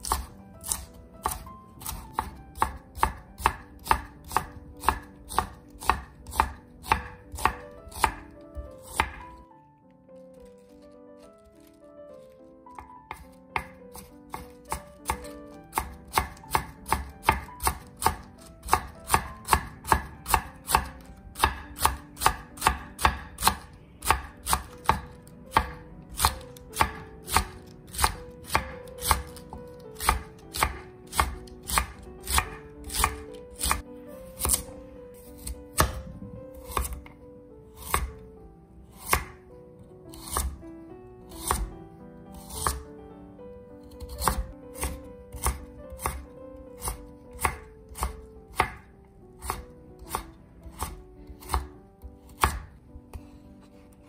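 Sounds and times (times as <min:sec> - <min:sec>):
knife chopping on wooden board: 0:00.0 - 0:09.4, 0:12.7 - 0:34.7, 0:35.3 - 0:37.2, 0:37.8 - 0:38.2, 0:39.0 - 0:39.4, 0:40.2 - 0:40.6, 0:41.4 - 0:41.7, 0:42.4 - 0:42.8, 0:43.8 - 0:53.2.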